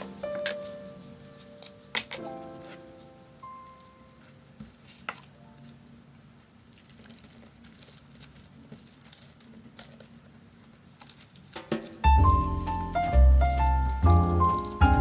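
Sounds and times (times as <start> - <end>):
paper rustling and small taps: 0.0 - 15.0.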